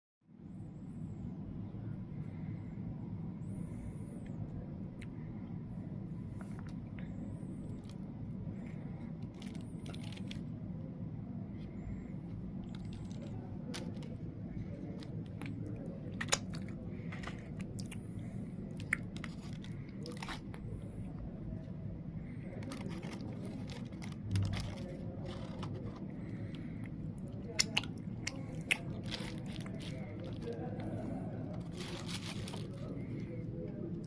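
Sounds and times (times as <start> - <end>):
low hum: 0.3 - 34.0
chewing and crunching food: 6.4 - 10.7, 11.5 - 34.0.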